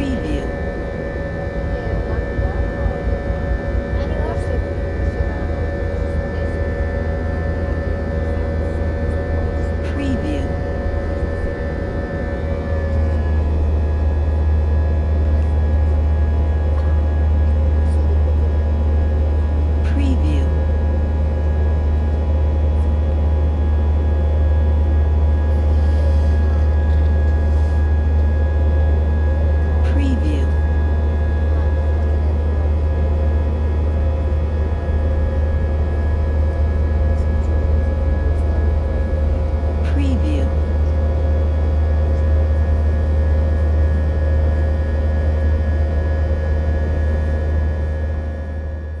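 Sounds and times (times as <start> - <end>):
high whine: 0.0 - 18.0
airliner engine drone: 0.0 - 49.0
constant whining tones: 0.0 - 49.0
low hum: 0.0 - 49.0.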